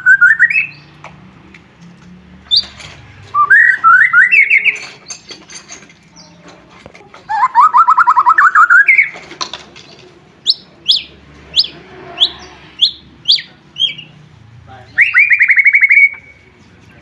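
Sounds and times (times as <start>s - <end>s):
bird singing trills and whistles: 0.0s - 0.9s, 3.4s - 5.3s, 7.3s - 9.2s, 10.4s - 14.2s, 14.9s - 16.6s.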